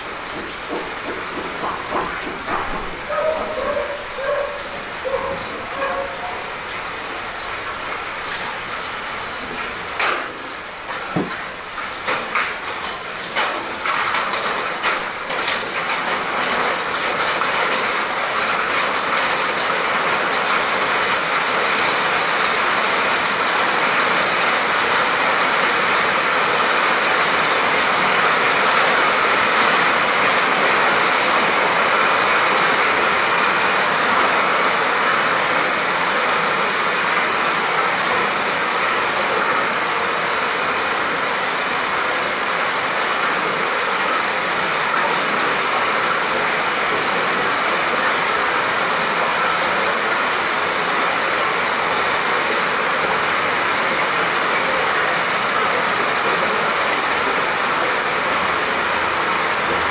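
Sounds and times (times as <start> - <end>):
raindrops tapping: 0.0 - 41.0
rain falling: 0.0 - 59.9.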